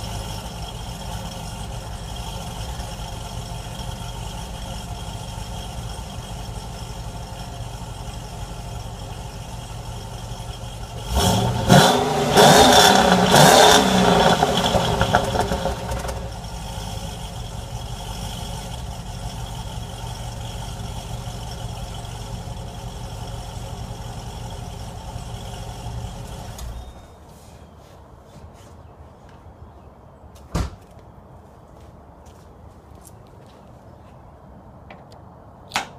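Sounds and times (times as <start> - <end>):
car engine idling and revving: 0.0 - 26.9.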